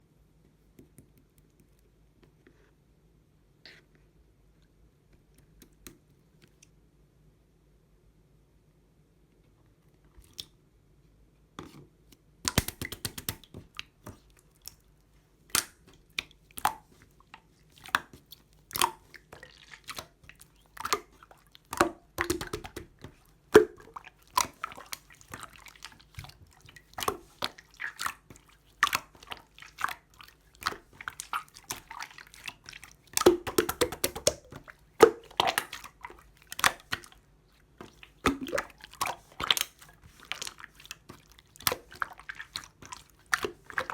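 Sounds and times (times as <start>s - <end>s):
slime sticky clicks and pops: 12.5s - 13.5s.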